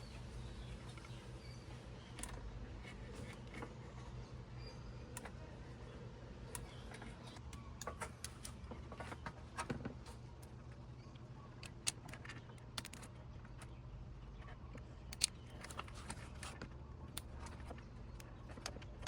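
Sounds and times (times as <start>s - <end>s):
faint low hum: 0.0s - 19.0s
hand tools clicking and tapping: 14.7s - 19.0s.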